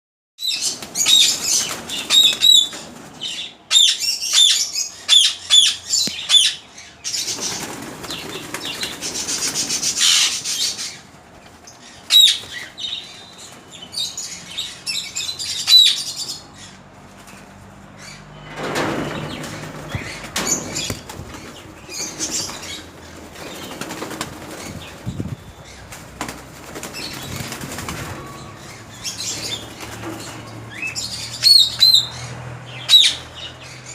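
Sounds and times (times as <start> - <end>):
birds flapping wings: 0.6 - 3.3, 7.1 - 13.8, 18.5 - 31.0.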